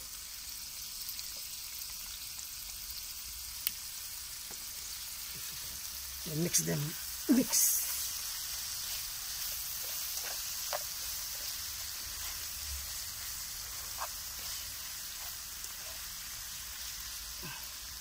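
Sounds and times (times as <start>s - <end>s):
meat sizzling in a pan: 0.0s - 18.0s
spatula scraping a pan: 7.3s - 17.2s.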